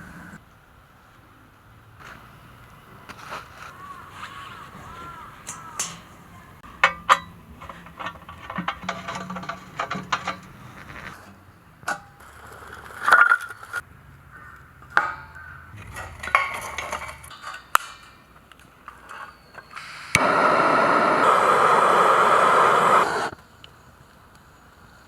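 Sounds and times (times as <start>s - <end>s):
cookware knocking and clinking: 5.1s - 11.1s.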